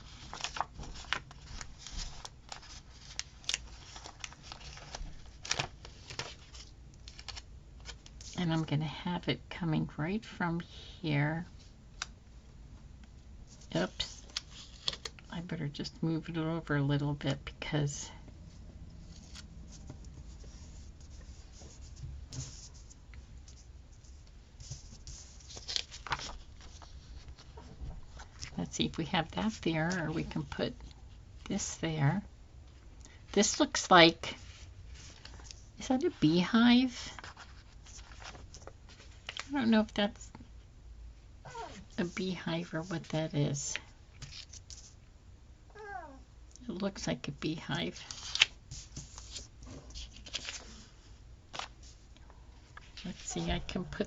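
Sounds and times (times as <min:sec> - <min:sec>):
paper stickers rustling: 0:00.0 - 0:08.0
paper rustling: 0:00.0 - 0:08.4, 0:13.6 - 0:15.2, 0:19.0 - 0:28.6, 0:37.1 - 0:39.5, 0:48.0 - 0:52.0.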